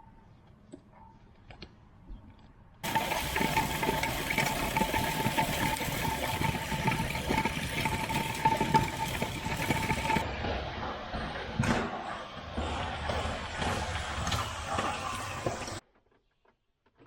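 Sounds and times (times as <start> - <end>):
farm machine engine running: 2.8 - 10.3.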